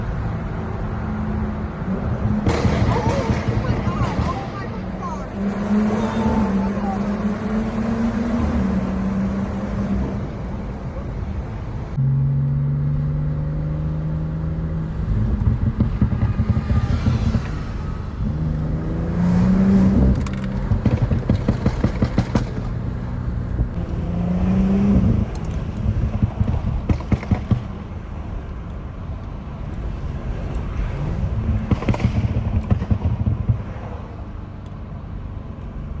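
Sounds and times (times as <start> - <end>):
car engine revving: 0.0 - 10.8, 11.9 - 36.0
exhaust pops and crackles: 2.3 - 4.9, 15.0 - 18.4, 19.9 - 34.8.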